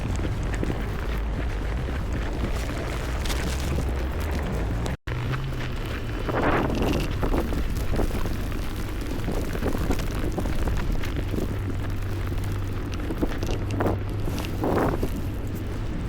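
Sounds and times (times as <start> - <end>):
low hum of city traffic: 0.0 - 16.0
wind buffeting the microphone: 0.0 - 16.0.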